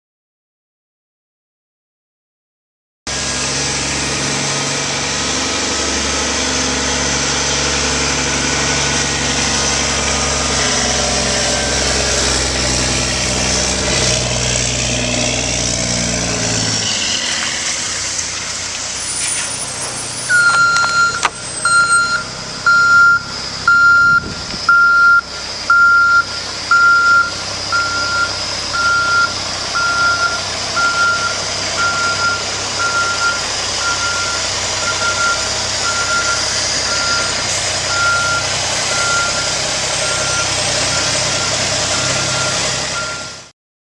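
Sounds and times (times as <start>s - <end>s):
diesel truck engine running: 3.1s - 43.5s
reversing beeper: 9.6s - 12.5s, 19.0s - 43.5s.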